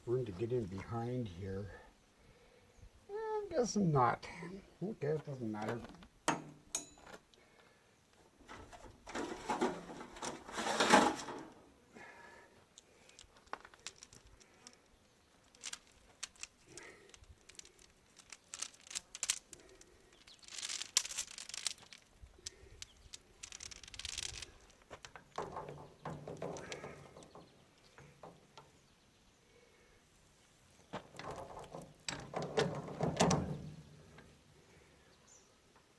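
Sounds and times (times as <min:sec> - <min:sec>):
chain clinking and rustling: 0:06.7 - 0:07.2, 0:12.6 - 0:28.3, 0:30.9 - 0:34.3
chain clattering: 0:12.7 - 0:27.3.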